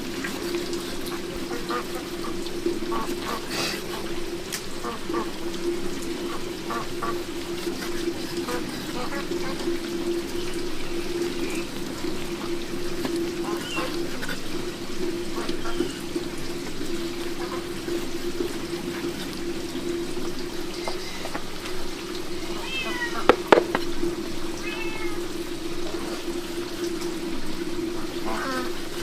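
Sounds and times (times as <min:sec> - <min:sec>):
running water: 0:00.0 - 0:29.0
cat meowing: 0:22.5 - 0:23.4, 0:24.6 - 0:25.3
sharp knocks: 0:23.3 - 0:23.9.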